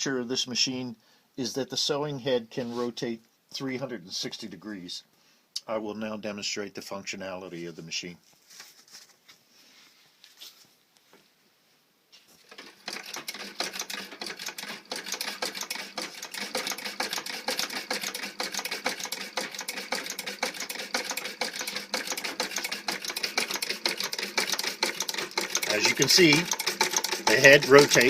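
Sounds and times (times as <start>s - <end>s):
sewing machine clicking: 12.4s - 28.0s.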